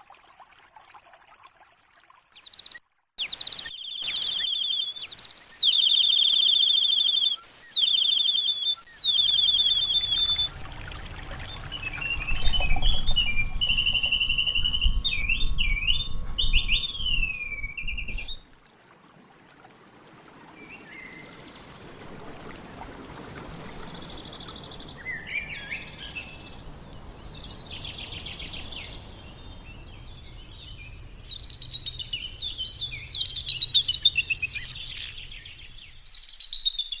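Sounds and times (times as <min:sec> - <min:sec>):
birds whistling and chirping: 0:02.4 - 0:18.4, 0:24.4 - 0:26.6, 0:30.6 - 0:37.0.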